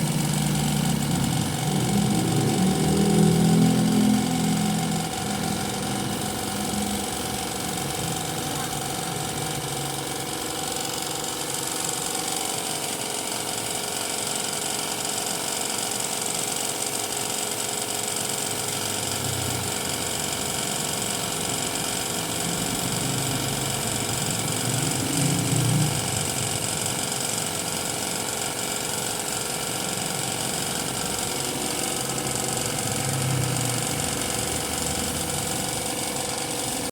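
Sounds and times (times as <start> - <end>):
air compressor motor running: 0.0 - 36.9
spray gun air hiss: 3.7 - 14.9, 19.7 - 36.9.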